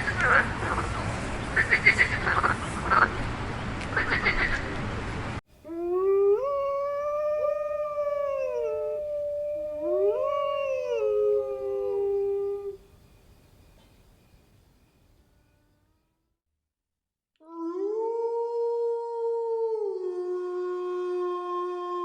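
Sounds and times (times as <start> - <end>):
dogs howling: 5.7 - 12.8.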